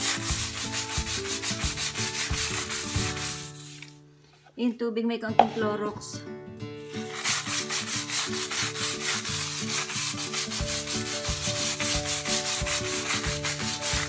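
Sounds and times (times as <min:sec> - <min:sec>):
scrub brush scrubbing tiles: 0:00.0 - 0:03.9, 0:06.9 - 0:14.0.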